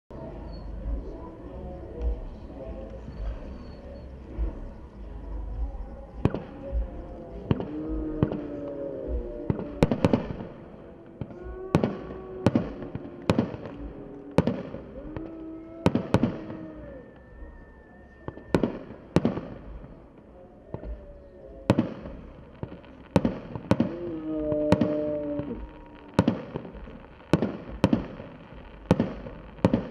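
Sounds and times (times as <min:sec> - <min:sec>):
held pitched whistling tones: 0:00.1 - 0:29.9
fireworks bangs: 0:05.5 - 0:29.9.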